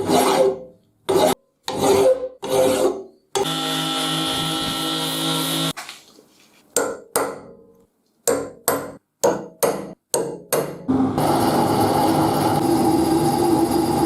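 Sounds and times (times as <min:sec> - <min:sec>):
hammer striking steel anvil: 0:08.3 - 0:10.9.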